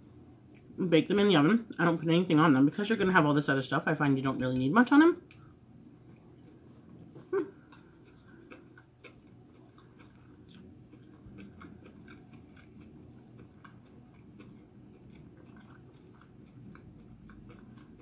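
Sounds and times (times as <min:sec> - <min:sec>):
person chewing food: 0:05.2 - 0:18.0.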